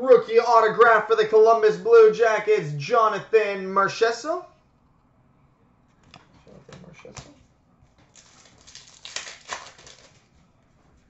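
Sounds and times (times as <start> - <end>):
cards rustling and clicking: 6.1 - 10.4.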